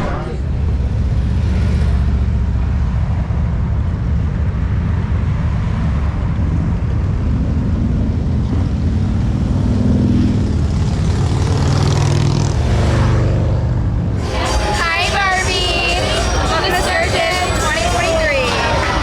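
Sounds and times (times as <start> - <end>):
motorcycle engines rumbling in traffic: 0.2 - 19.0.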